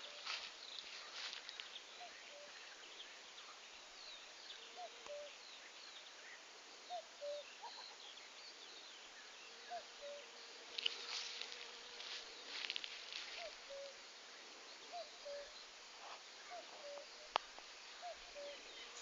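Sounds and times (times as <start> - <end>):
crackling rustle: 0.0 - 2.1, 10.6 - 14.0.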